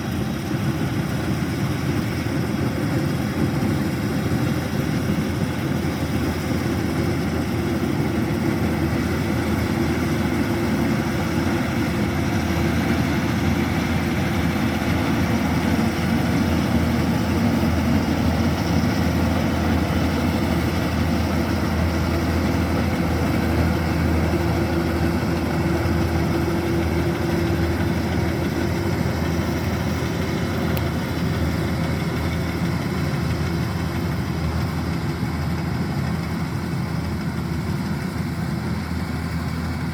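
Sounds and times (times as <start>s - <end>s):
combine harvester diesel engine drone: 0.0s - 39.9s
harvesting machinery noise: 0.0s - 39.9s.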